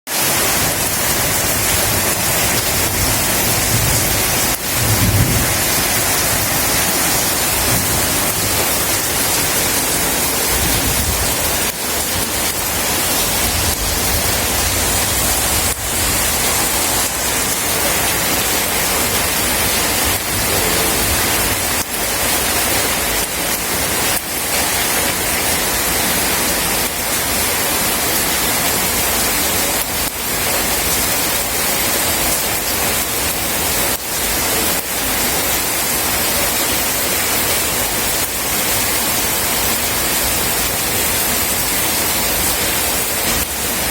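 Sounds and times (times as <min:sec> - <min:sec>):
steady rain falling: 0:00.1 - 0:43.9
thunder rumble: 0:01.6 - 0:23.2.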